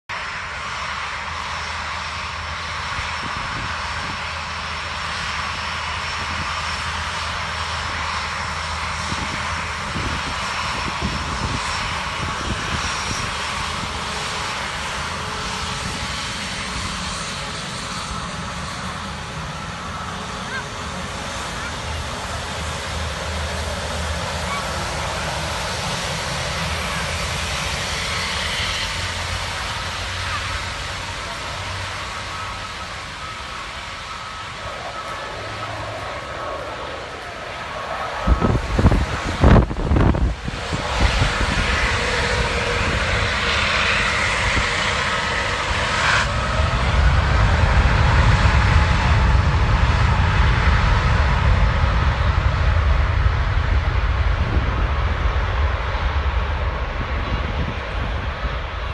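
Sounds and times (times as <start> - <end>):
distant jet engines at takeoff: 0.1 - 58.9.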